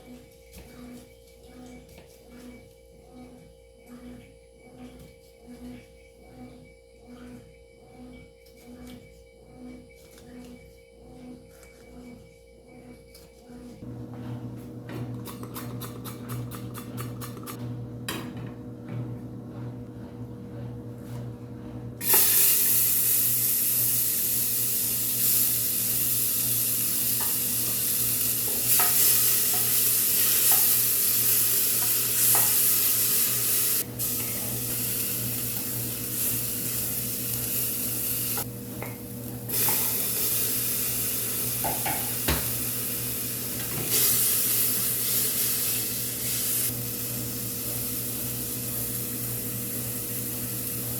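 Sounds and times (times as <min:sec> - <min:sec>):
food sizzling in frying pan: 0:22.0 - 0:38.5, 0:39.3 - 0:50.9.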